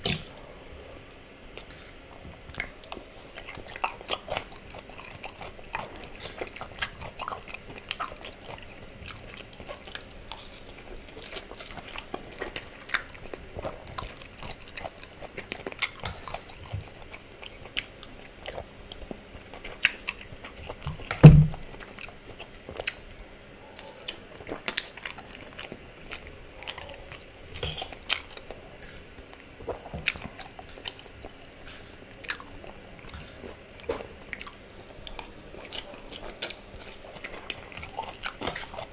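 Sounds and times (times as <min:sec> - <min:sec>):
chewing and biting food: 0:00.0 - 0:38.9
loud thump: 0:21.2 - 0:21.6.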